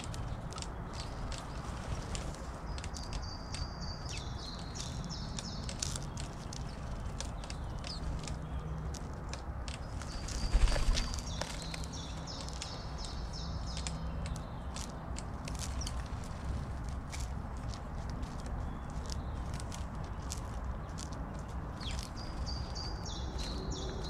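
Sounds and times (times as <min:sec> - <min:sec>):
songbird singing: 0:00.0 - 0:24.0
small clicks and taps: 0:11.2 - 0:16.0.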